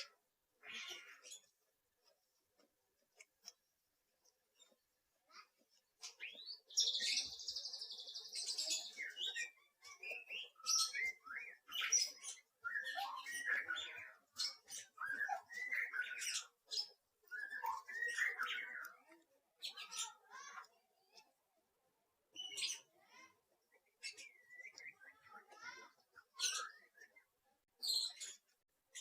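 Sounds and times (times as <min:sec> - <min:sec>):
songbird chirps and warbles: 0:00.0 - 0:29.0
songbird trill: 0:04.6 - 0:21.3, 0:22.3 - 0:29.0.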